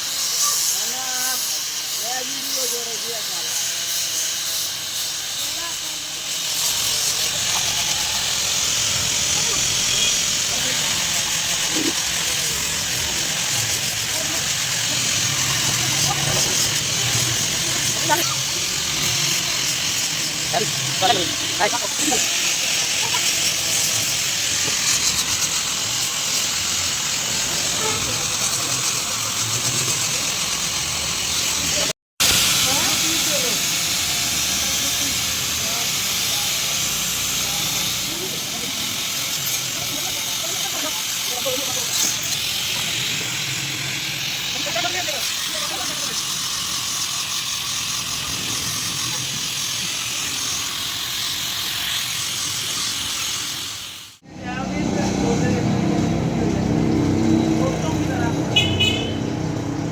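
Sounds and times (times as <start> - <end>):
steady hiss: 0.0 - 54.2
faint voices: 5.4 - 25.0, 27.0 - 30.8, 32.6 - 48.1.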